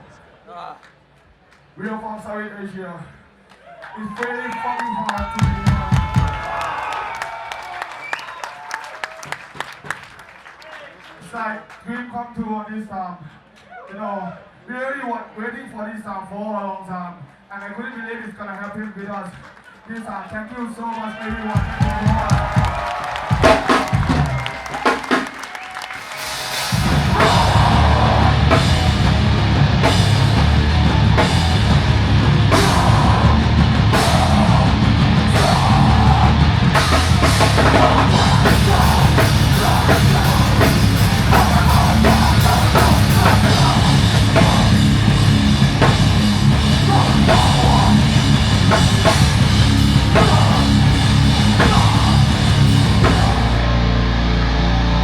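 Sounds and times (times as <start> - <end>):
drum kit: 5.2 - 6.8, 21.5 - 55.0
heavy rock music: 26.0 - 55.0.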